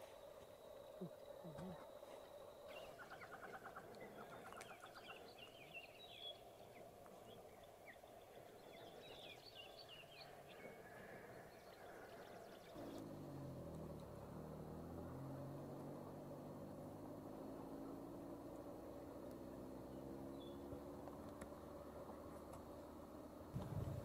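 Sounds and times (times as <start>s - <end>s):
faint bird calls: 0.0s - 14.3s
faint steady hum: 0.0s - 24.0s
low hum: 0.0s - 24.0s.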